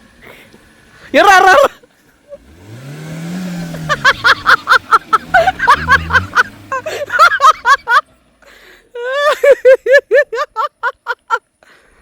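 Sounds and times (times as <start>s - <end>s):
vehicle engine revving: 2.2s - 8.6s.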